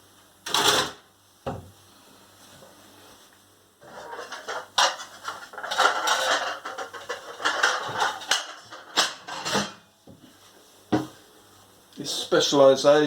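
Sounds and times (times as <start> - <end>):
plates clattering and clinking: 3.8 - 9.9.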